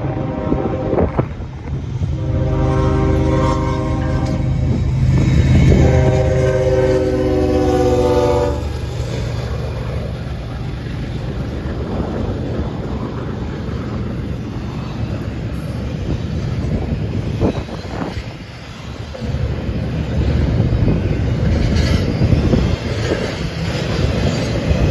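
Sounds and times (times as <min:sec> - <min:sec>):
train air horn: 0:00.0 - 0:01.4, 0:02.1 - 0:04.8, 0:05.5 - 0:08.7
train rumbling past: 0:00.0 - 0:24.9.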